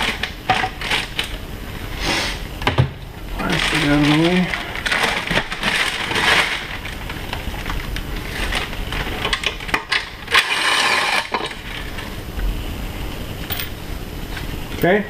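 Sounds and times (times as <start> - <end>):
cordless drill spinning: 10.3 - 11.4.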